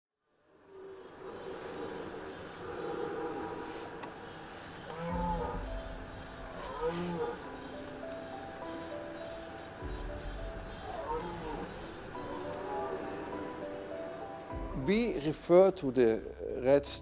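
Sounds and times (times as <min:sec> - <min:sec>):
crickets chirping: 0:00.2 - 0:16.6
low music drone: 0:00.8 - 0:17.0
stag roaring: 0:01.1 - 0:04.2, 0:04.9 - 0:07.4.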